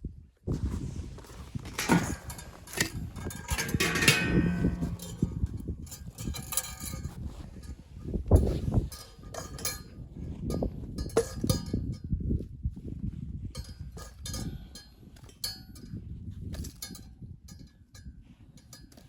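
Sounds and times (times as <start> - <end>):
objects knocking and clattering: 1.6 - 5.6
ringing metallic clink: 3.4 - 5.5.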